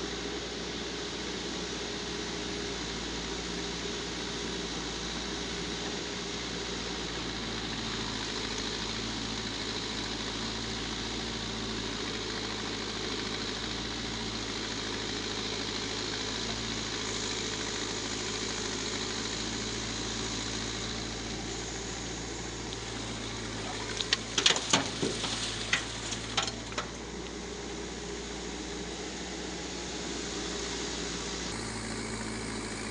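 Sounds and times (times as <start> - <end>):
diesel engine running: 0.0 - 32.9
loud knocks and clatter: 24.1 - 27.0.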